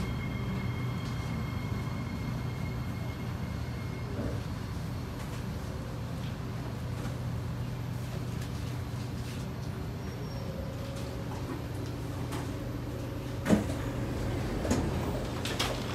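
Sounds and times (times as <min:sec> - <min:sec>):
train electrical hum: 0:00.0 - 0:15.9
train door mechanism clunk: 0:13.4 - 0:15.9.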